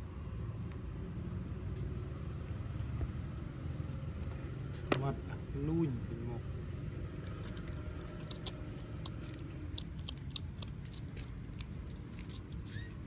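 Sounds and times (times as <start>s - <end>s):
steady low hum: 0.0s - 13.0s
puppies feeding mouth clicks: 7.2s - 13.0s.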